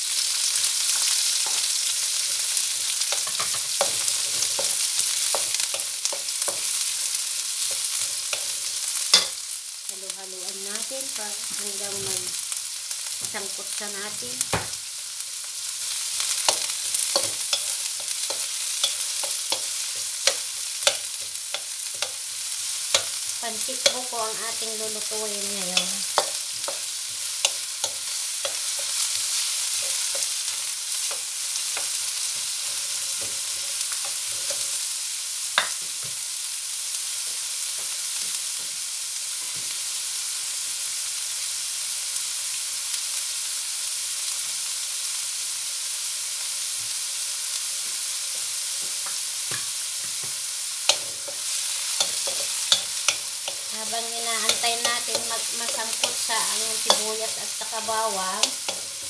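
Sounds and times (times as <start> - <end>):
onion sizzling in hot oil: 0.0 - 59.0.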